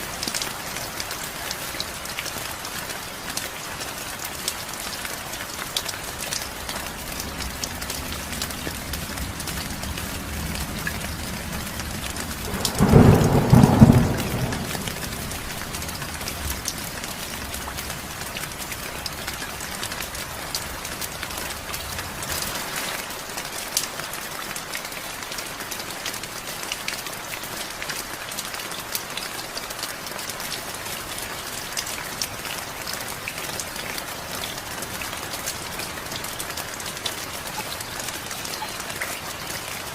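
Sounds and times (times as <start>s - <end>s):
heavy rain: 0.0s - 39.9s
thunder clap: 7.4s - 17.0s.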